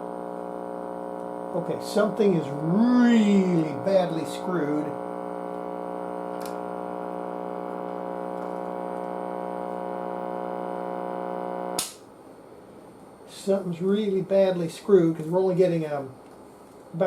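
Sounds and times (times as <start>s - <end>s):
tv set mains buzz: 0.0s - 17.0s
sharp switch click: 11.8s - 12.0s.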